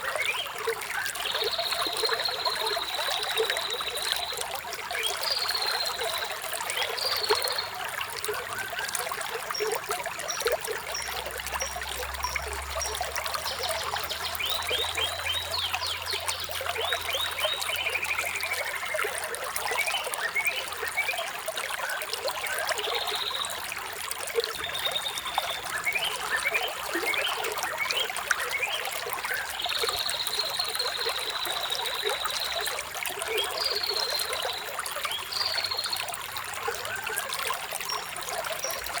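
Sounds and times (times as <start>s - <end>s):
stream trickling over stones: 0.0s - 39.0s
songbirds chirping: 24.4s - 36.2s.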